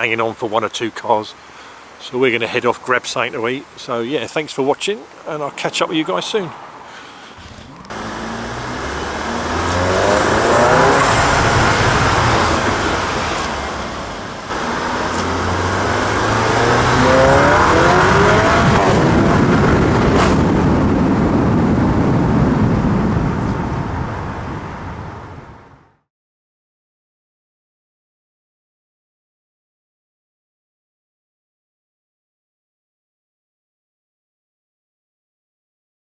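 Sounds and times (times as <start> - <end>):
loud rushing noise: 7.4 - 23.3
car engine revving hard: 7.5 - 21.9.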